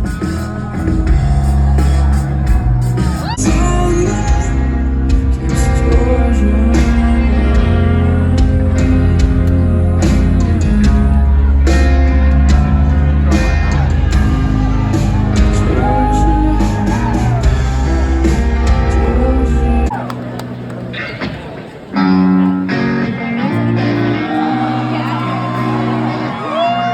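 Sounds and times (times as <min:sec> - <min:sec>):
person singing: 0:00.0 - 0:20.0
live rock band playing: 0:00.0 - 0:26.9.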